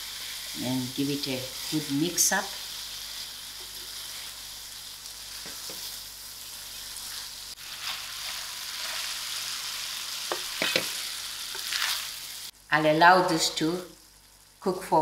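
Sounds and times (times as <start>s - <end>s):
food sizzling in a pan: 0.0s - 15.0s
wooden spoon knocking and scraping pan: 5.4s - 6.0s, 10.2s - 11.8s.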